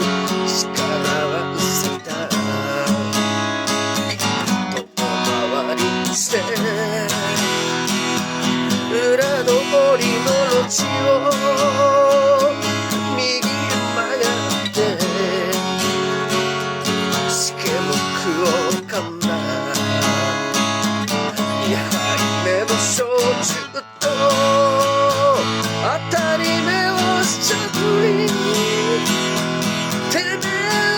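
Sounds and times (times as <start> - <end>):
acoustic guitar strumming: 0.0 - 30.9.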